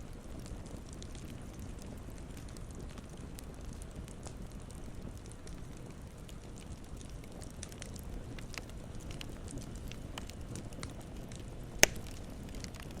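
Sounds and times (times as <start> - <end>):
campfire crackling: 0.0 - 13.0
loud sharp pop of fire: 11.8 - 13.0.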